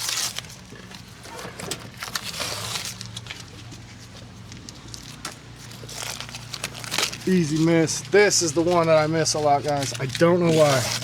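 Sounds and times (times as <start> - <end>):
tape ripping off surface: 0.0 - 3.5, 5.0 - 7.6, 9.6 - 11.0.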